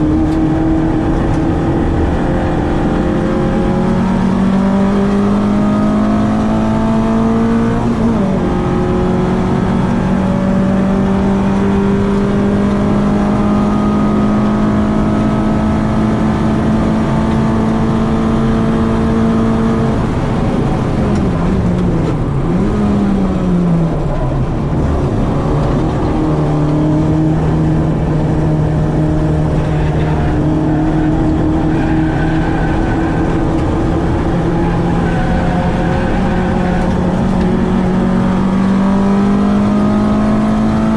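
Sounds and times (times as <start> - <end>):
car engine revving high: 0.0 - 40.9.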